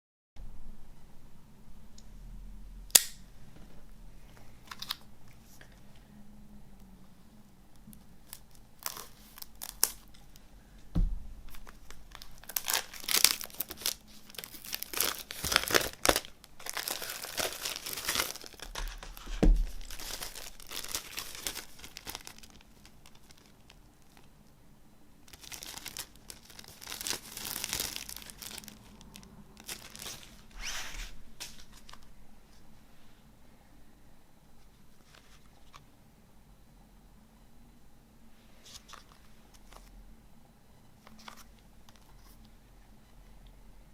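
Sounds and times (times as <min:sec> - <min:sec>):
plastic shrink-wrap crinkling: 0:08.2 - 0:10.4, 0:11.4 - 0:24.3, 0:25.2 - 0:32.1.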